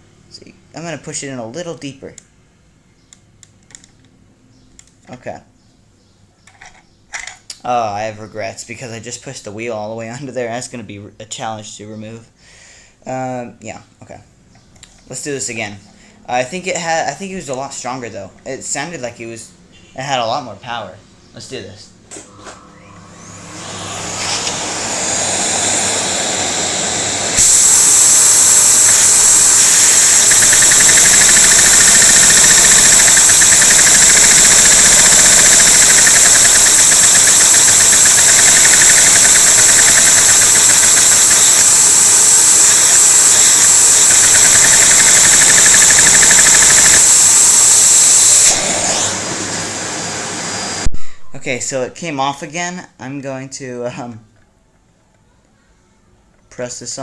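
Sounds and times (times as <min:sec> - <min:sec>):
vacuum cleaner motor whining: 0:22.3 - 0:50.9.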